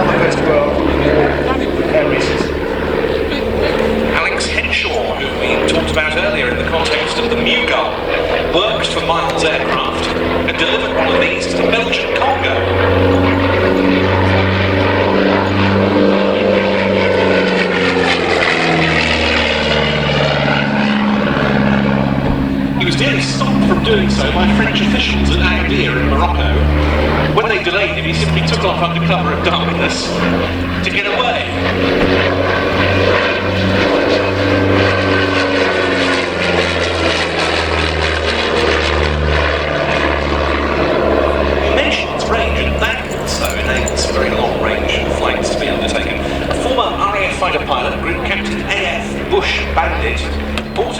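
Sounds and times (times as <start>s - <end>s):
propeller aircraft flying past: 0.0s - 50.9s.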